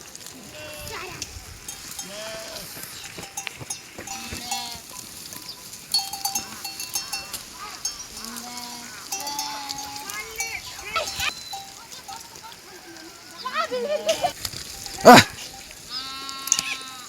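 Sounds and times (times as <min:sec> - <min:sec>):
livestock bleating: 0:00.4 - 0:03.0, 0:04.0 - 0:05.0, 0:06.3 - 0:11.6, 0:15.0 - 0:17.0
small bell clinking: 0:01.6 - 0:08.4, 0:09.1 - 0:12.4.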